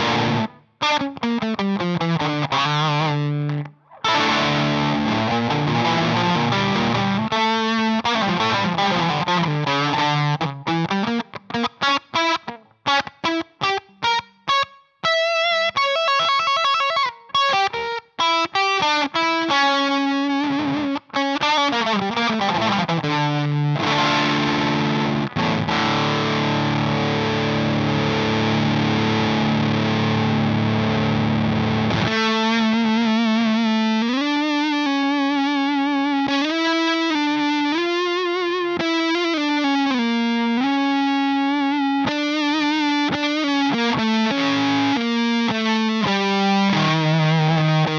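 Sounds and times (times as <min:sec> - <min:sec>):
fuzz electric guitar: 0:00.0 - 0:47.9.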